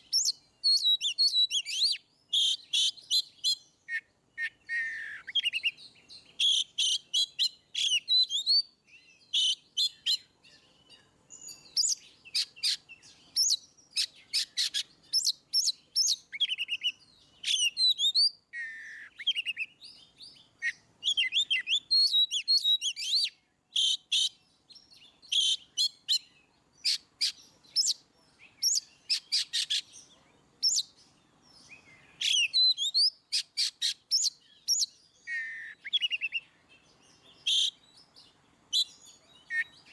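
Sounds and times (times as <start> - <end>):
bird singing whistled phrases: 0.0 - 39.9.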